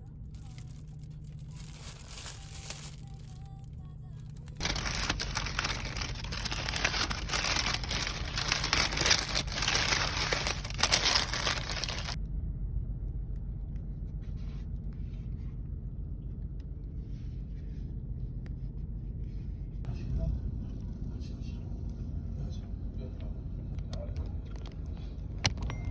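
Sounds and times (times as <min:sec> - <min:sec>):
loud crinkling rustling: 0:00.3 - 0:03.5, 0:04.2 - 0:12.2.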